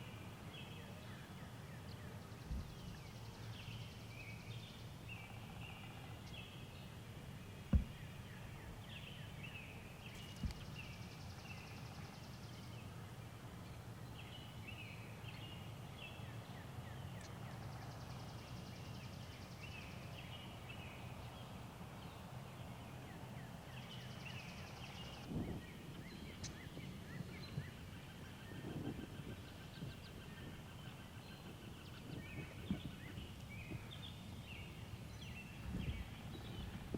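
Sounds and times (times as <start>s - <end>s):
woodland birdsong: 0.0s - 36.9s
low steady rumble: 1.8s - 15.4s
sharp thumps: 7.7s - 9.0s.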